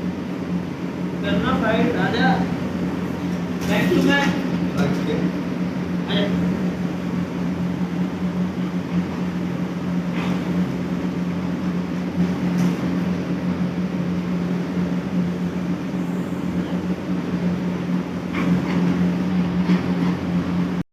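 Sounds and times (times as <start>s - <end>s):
machine hum: 0.0s - 20.8s.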